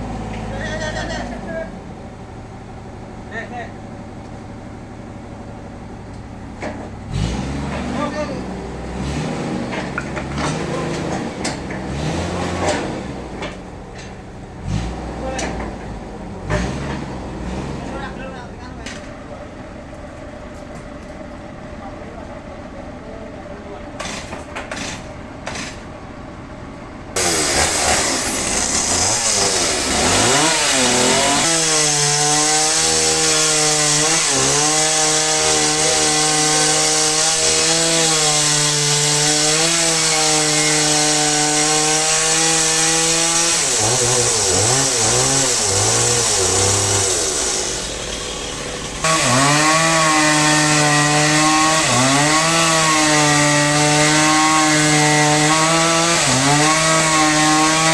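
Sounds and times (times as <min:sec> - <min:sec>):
chainsaw cutting wood: 0:06.6 - 0:18.1, 0:24.0 - 0:25.9, 0:27.2 - 0:57.9.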